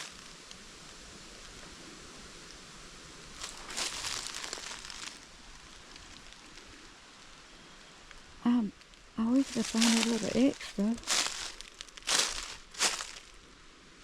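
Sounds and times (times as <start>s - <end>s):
faint steady hiss: 0.0s - 14.0s
footsteps crunching dry leaves: 3.3s - 5.4s, 9.3s - 13.4s.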